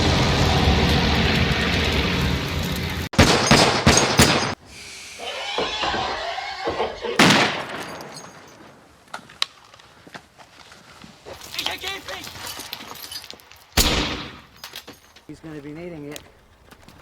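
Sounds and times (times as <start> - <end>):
steady rumble: 0.0 - 3.1
loud gunshot with echo: 3.2 - 4.6, 7.2 - 8.1, 13.8 - 14.4.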